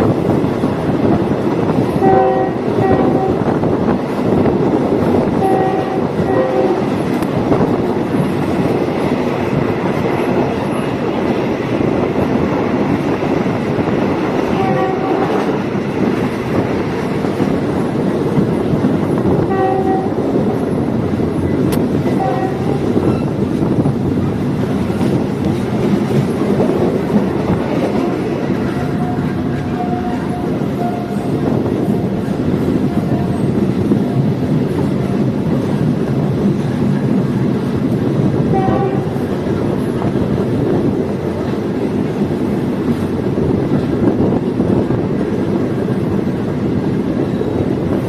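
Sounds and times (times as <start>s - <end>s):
train rolling rumble: 0.0s - 48.0s
train horn blasts: 1.9s - 3.5s, 5.4s - 7.0s, 14.5s - 15.5s, 19.4s - 20.2s, 22.1s - 23.4s, 28.0s - 32.0s, 38.5s - 39.3s.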